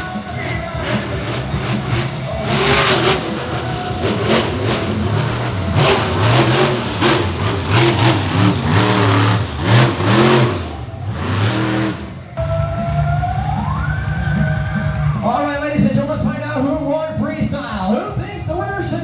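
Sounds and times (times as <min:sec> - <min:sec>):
truck engine revving hard: 0:00.0 - 0:12.4.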